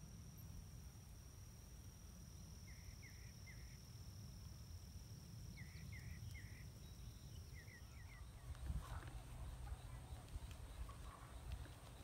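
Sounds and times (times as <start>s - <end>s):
high-pitched insect drone: 0.0s - 8.3s.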